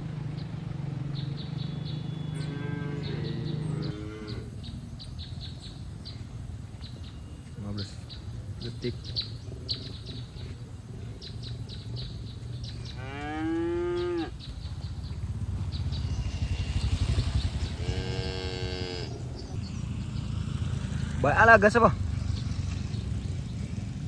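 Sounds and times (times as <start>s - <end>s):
cattle mooing: 2.3s - 4.5s, 12.9s - 14.4s, 17.6s - 19.3s
steady low rumble: 14.3s - 24.0s.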